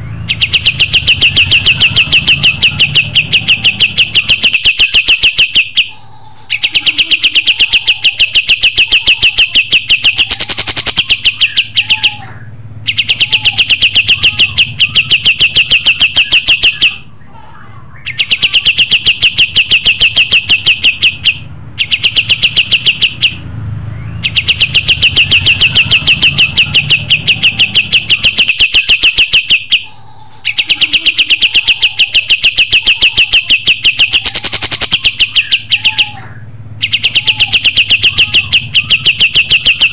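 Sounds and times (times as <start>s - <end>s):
songbird trilling: 0.0s - 17.2s, 18.0s - 23.4s, 24.0s - 39.9s.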